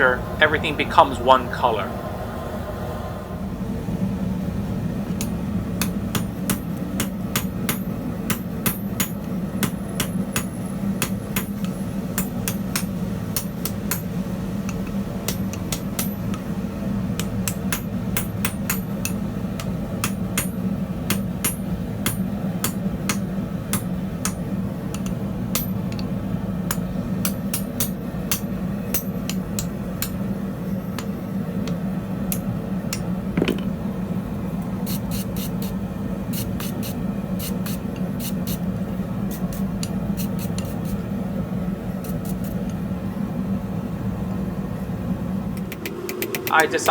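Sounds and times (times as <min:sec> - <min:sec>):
steady low hum: 0:00.0 - 0:46.9
hammer striking steel on anvil: 0:05.2 - 0:16.4, 0:17.2 - 0:26.1, 0:26.7 - 0:33.8.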